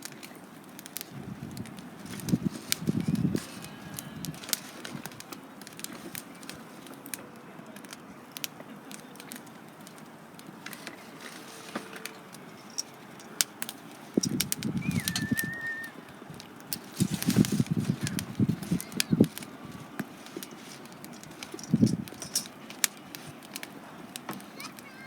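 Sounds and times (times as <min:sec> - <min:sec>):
campfire crackling and popping: 0:00.0 - 0:25.0
bird whistled call: 0:14.8 - 0:16.0.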